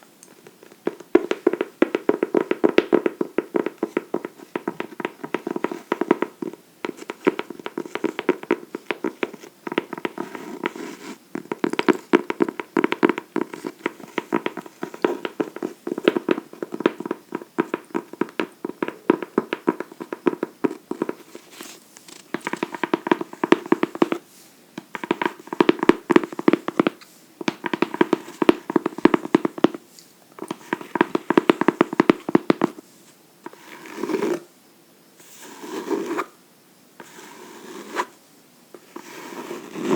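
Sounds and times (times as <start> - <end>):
fingernails tapping on a book: 0.5 - 24.2, 24.8 - 29.8, 30.4 - 32.8.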